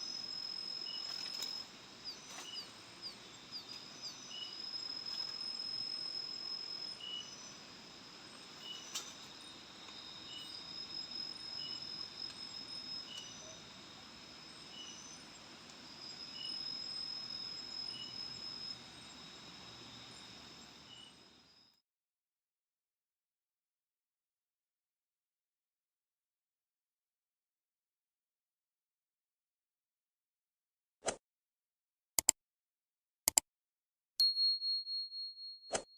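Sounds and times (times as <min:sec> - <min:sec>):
insects chirring: 0:00.0 - 0:21.8
short insect chirps: 0:00.0 - 0:21.8.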